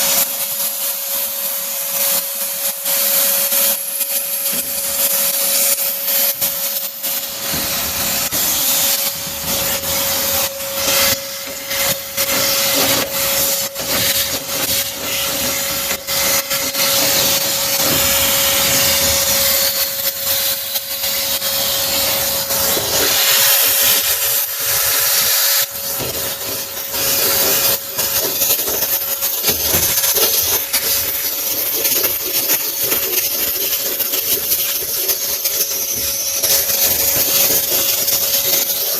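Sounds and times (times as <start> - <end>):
vacuum cleaner running: 0.0 - 38.9
nozzle scraping against metal: 7.2 - 20.8.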